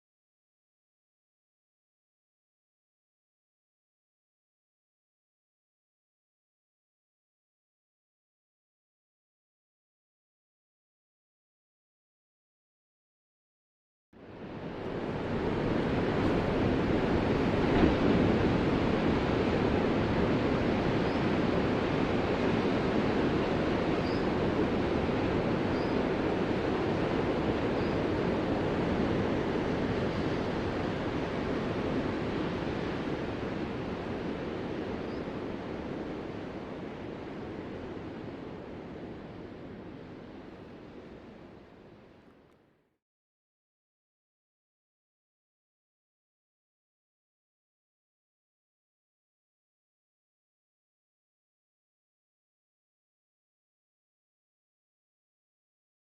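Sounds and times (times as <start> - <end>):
ocean surf washing on shore: 14.2 - 41.5.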